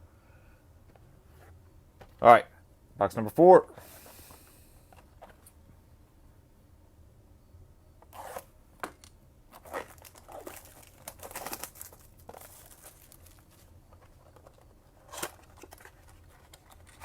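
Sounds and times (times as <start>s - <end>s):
cardboard box tearing and crinkling: 9.5s - 13.6s, 15.0s - 17.0s.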